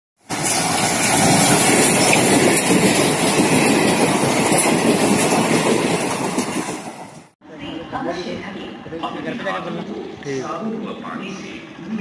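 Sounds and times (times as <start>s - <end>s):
train wheels rushing over rails: 0.2s - 7.3s.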